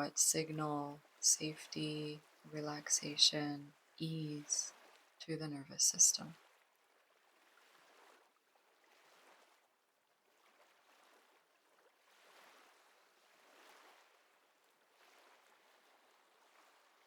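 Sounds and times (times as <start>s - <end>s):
ocean waves washing: 0.0s - 6.5s.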